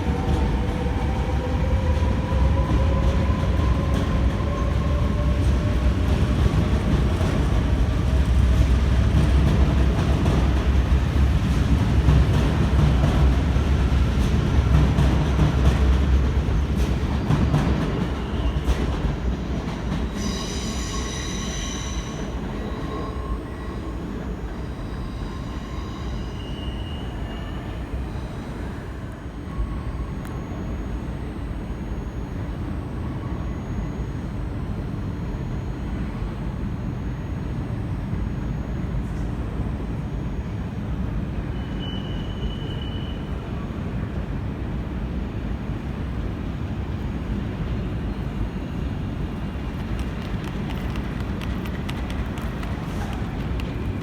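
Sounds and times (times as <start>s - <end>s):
train rumbling: 0.0s - 31.4s, 34.2s - 54.0s
steel wheels squealing on rails: 14.2s - 30.8s, 39.8s - 44.0s.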